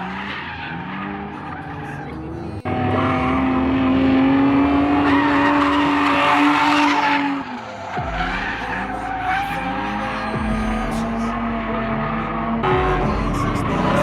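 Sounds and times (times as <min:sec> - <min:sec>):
car engine revving: 0:00.0 - 0:14.0
tyres skidding: 0:00.0 - 0:14.0.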